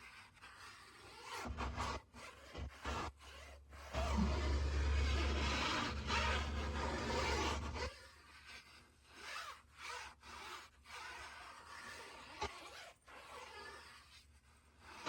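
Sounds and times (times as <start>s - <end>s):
rubbing and scraping from cleaning: 1.1s - 14.2s.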